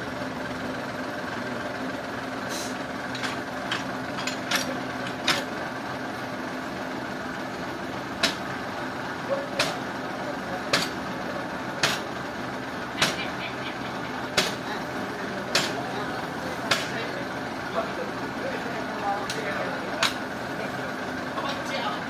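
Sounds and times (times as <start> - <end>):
engine idling: 0.0 - 22.0
sharp knocks or clanks: 8.2 - 8.5, 9.6 - 9.8, 10.7 - 11.0, 11.8 - 12.1, 13.0 - 13.3, 15.5 - 15.8.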